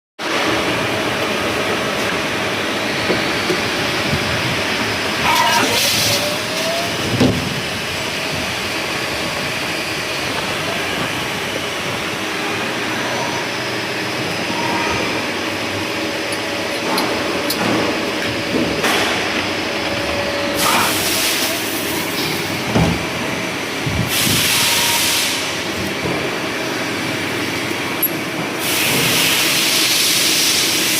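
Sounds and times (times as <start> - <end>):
machine mechanical hum: 0.2 - 30.9
loud hissing bursts: 20.4 - 22.5, 24.0 - 25.7.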